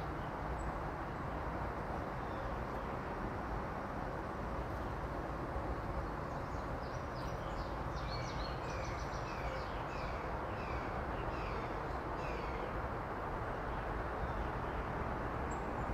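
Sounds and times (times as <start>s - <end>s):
steady rushing background noise: 9.8s - 15.9s.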